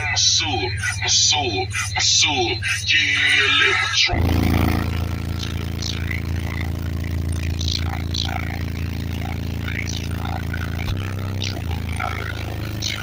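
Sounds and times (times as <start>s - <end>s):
faint vocals: 0.0s - 4.2s
deep subwoofer bass: 4.1s - 13.0s.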